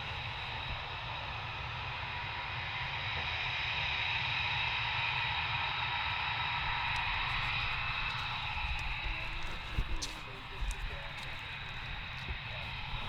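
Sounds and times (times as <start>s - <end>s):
wind buffeting microphone: 6.6s - 13.0s.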